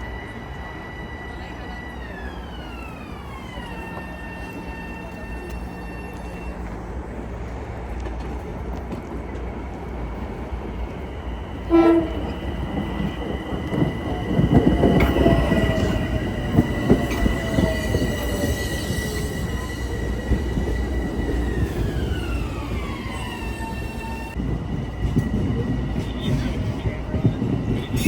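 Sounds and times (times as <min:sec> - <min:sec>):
train rumble and wheel clatter: 0:00.0 - 0:28.0
train horn blast: 0:11.6 - 0:12.4.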